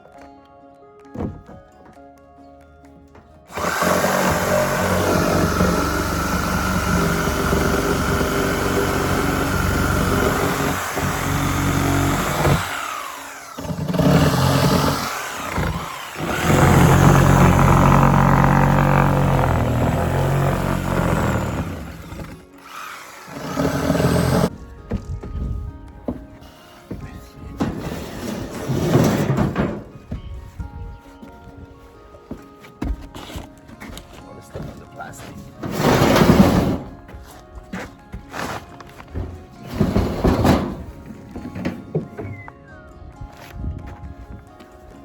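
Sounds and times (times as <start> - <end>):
electric power tool running: 3.5 - 24.5.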